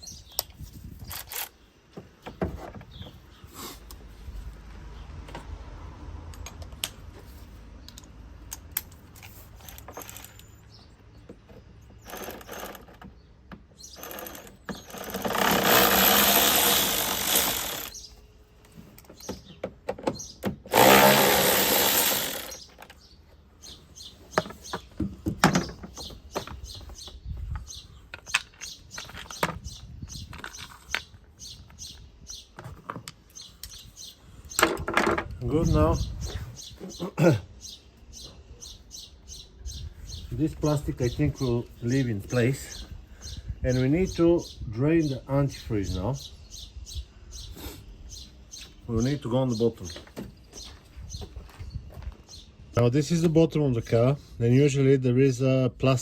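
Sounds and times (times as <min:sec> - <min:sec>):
clicks and knocks of tools: 0:06.3 - 0:10.6
cordless drill running: 0:14.0 - 0:18.0, 0:20.7 - 0:22.7.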